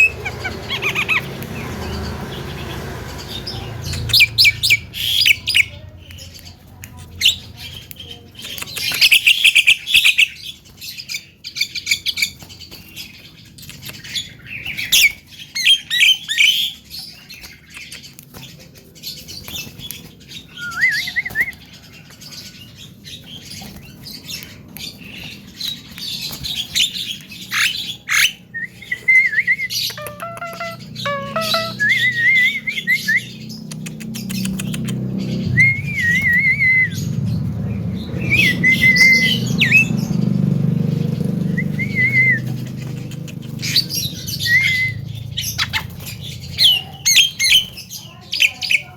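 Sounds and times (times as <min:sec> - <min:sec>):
bird harsh chirps and chatter: 0:00.0 - 0:48.9
bird wavering whistle: 0:29.0 - 0:33.3.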